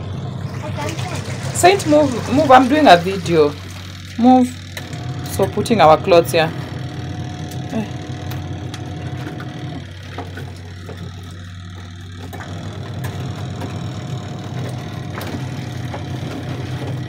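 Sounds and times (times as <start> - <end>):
water churning: 0.0 - 8.2
washing machine motor humming: 0.0 - 17.0.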